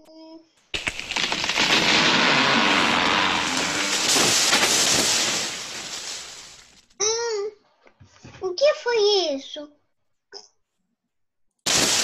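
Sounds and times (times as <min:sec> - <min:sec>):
tree cracking and falling: 0:00.7 - 0:06.9, 0:11.6 - 0:12.0.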